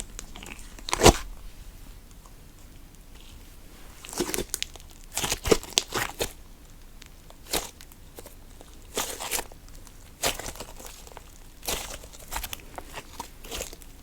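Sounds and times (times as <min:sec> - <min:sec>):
slime squished by hand: 0:00.0 - 0:01.5
wet crackling and popping bubbles: 0:00.0 - 0:03.1.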